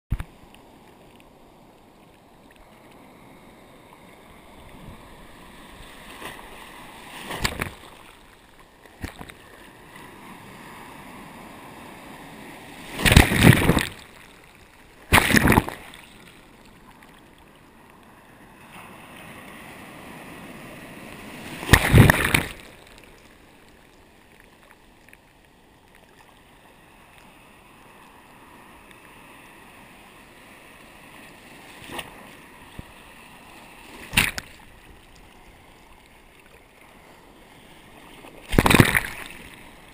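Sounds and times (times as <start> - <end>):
low wash of surf: 0.1 - 8.4, 9.3 - 24.2
waves breaking: 0.1 - 39.9.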